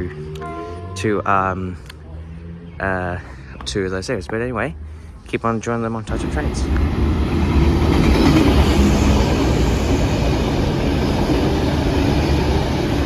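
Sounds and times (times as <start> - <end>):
train passing on track: 6.0 - 13.0.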